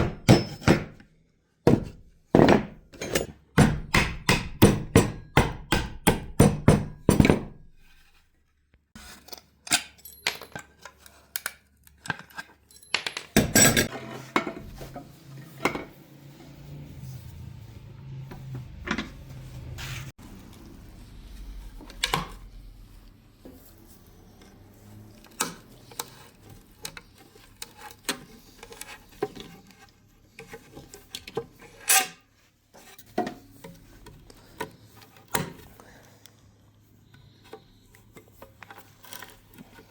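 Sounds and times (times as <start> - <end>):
hammer tapping: 3.6 - 7.6
hand tools clinking: 9.7 - 10.9, 12.1 - 13.9.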